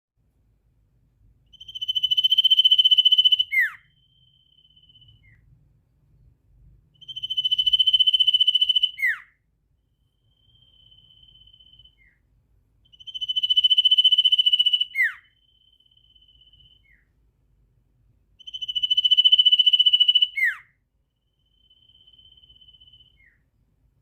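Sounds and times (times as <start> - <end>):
bird whistle-like trill: 1.5 - 5.5, 7.0 - 9.4, 10.1 - 12.2, 12.9 - 17.1, 18.4 - 23.5.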